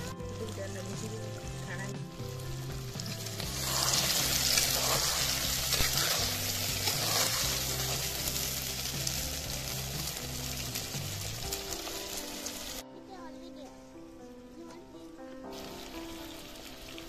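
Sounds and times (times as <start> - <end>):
background music: 0.0 - 17.0
curry sizzling: 0.0 - 17.0
metal spatula stirring: 3.0 - 9.6.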